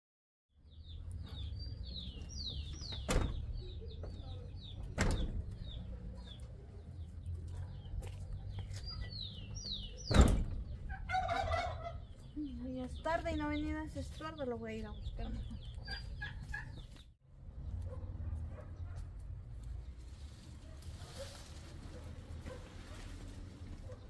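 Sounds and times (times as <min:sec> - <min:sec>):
birds chirping: 0:00.6 - 0:19.0.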